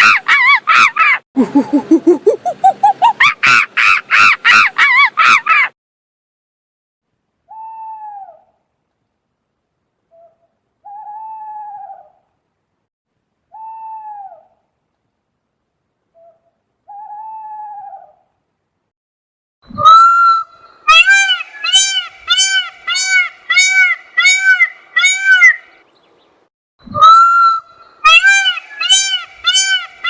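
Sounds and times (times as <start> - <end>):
high animal calls: 19.7 - 25.7, 26.9 - 30.0.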